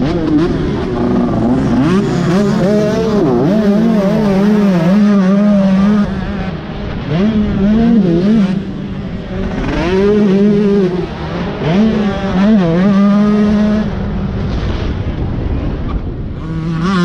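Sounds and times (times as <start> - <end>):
dirt bike engine revving: 0.0 - 15.4, 16.0 - 17.0.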